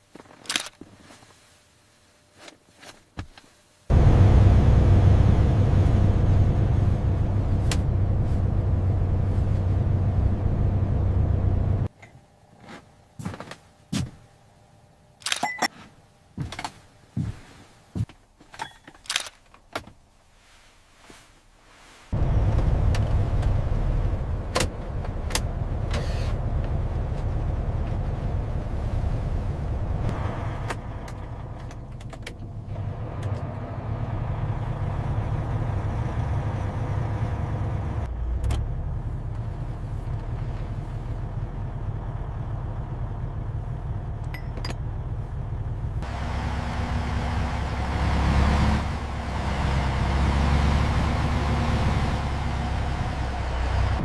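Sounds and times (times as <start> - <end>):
truck engine rumbling: 3.9 - 11.9, 22.1 - 54.0.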